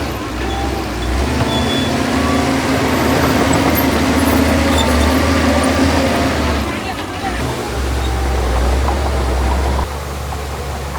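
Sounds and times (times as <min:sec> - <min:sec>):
heavy diesel engine rumbling: 0:00.0 - 0:10.9.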